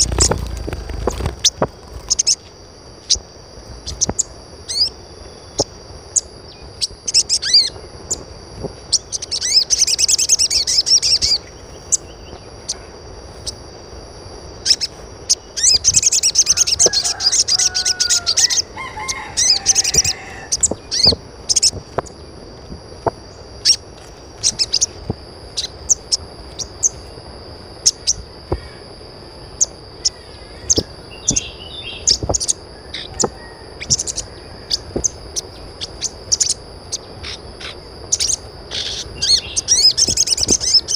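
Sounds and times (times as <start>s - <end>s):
birds chirping: 0.0s - 40.9s
steady high tone: 0.0s - 40.9s.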